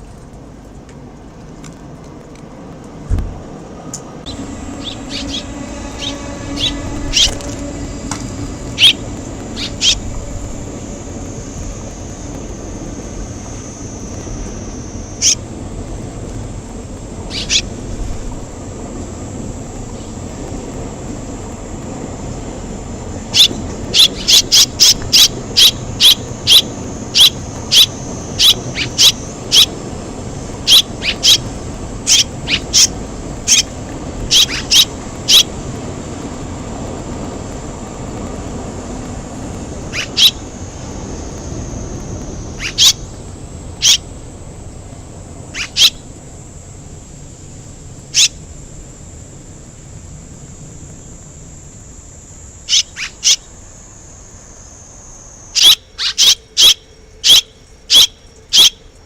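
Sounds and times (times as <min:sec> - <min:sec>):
steady background hiss: 0:00.0 - 0:59.0
swallows chirping: 0:04.3 - 0:15.4, 0:17.2 - 0:17.9, 0:23.2 - 0:35.6, 0:39.8 - 0:44.0, 0:45.5 - 0:46.0, 0:55.6 - 0:58.8.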